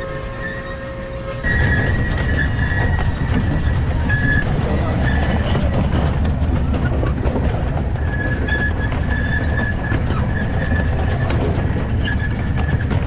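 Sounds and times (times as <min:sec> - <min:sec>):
thin high squeal: 0:00.0 - 0:04.5
train wheels rumbling on rail: 0:00.0 - 0:13.0.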